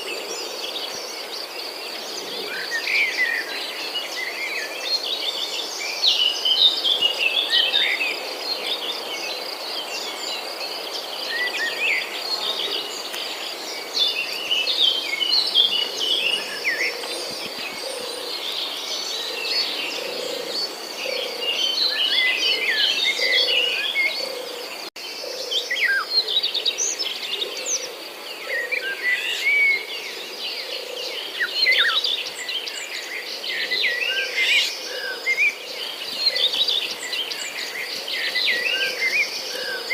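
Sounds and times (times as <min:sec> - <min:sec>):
small birds chirping: 0:02.3 - 0:39.9.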